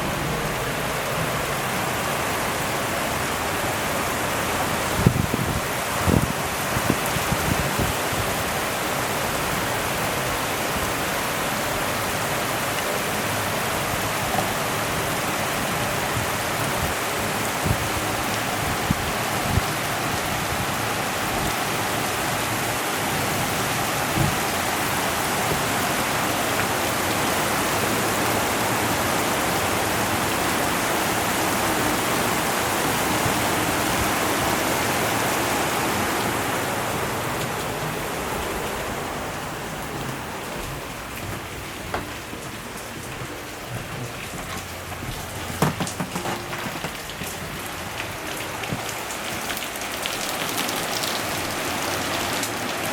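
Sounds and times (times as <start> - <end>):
heavy rain pouring: 0.0 - 52.9
drips and splashes: 45.2 - 52.9.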